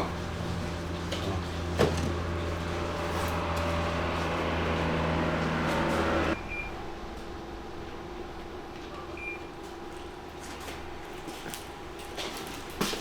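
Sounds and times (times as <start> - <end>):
microwave oven humming: 0.0 - 7.0
microwave beep: 6.4 - 6.8, 8.9 - 9.5.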